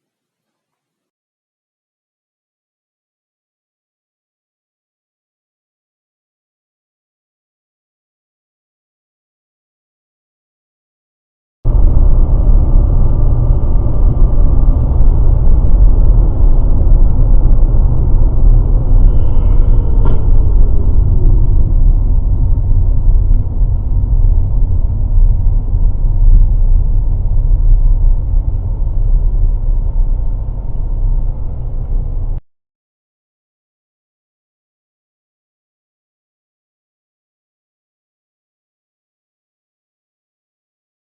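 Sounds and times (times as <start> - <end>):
car engine rumble: 11.7 - 32.4
road noise: 11.7 - 32.4.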